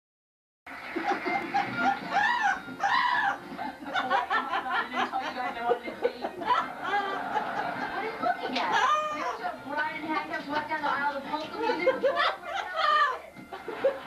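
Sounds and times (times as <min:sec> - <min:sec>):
tv laugh track: 0:00.7 - 0:09.6, 0:10.2 - 0:14.0
parrot laughing: 0:00.8 - 0:09.6, 0:11.7 - 0:14.0
parrot hoots: 0:01.7 - 0:03.4.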